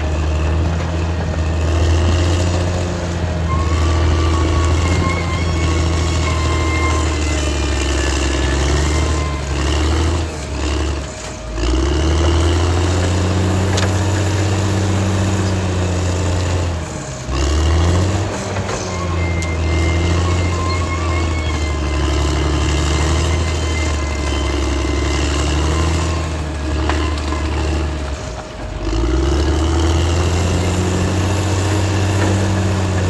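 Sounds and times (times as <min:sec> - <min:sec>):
bulldozer diesel engine: 0:00.0 - 0:33.0.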